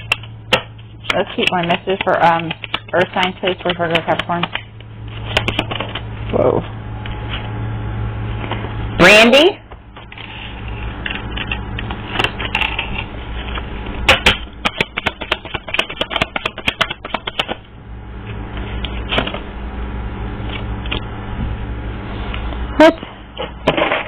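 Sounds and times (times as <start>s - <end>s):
cards being shuffled: 1.0s - 6.0s, 14.6s - 17.6s
cards snapping: 14.1s - 17.6s.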